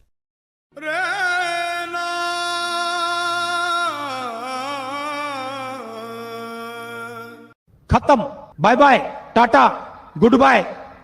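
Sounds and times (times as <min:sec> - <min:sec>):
person singing long note: 0:00.7 - 0:07.6.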